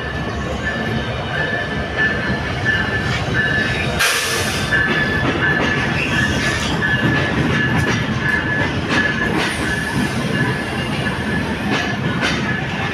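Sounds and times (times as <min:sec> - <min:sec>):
train rumbling on rails: 0:00.0 - 0:12.9.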